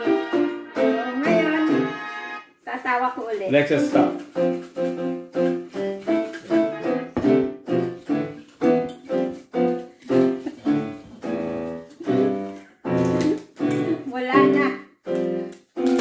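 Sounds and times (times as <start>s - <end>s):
piano chords: 0.0s - 2.4s, 3.8s - 16.0s.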